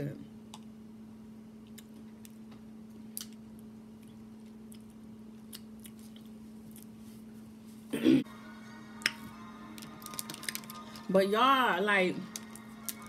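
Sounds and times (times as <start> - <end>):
steady low hum: 0.0 - 13.0
chewing and lip smacks: 1.6 - 7.0.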